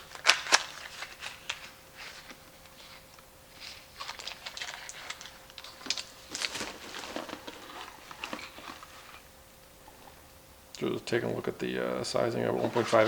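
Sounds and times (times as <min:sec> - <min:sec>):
packaging rustling and crinkling: 0:00.0 - 0:10.2, 0:12.3 - 0:13.0.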